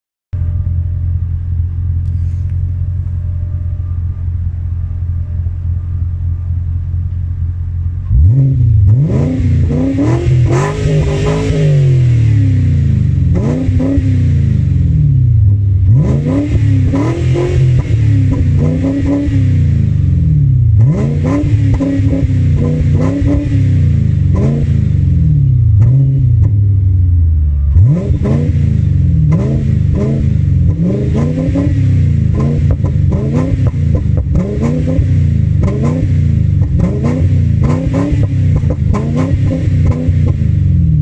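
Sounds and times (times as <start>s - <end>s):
car engine idling and revving: 0.3s - 41.0s.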